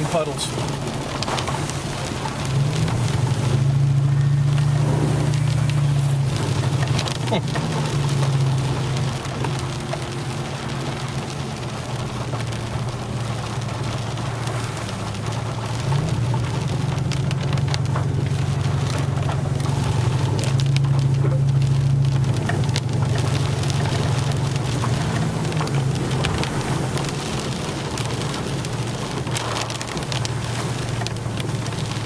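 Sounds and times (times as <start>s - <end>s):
rain pattering on roof and windshield: 0.0s - 32.0s
truck engine humming: 0.0s - 32.0s.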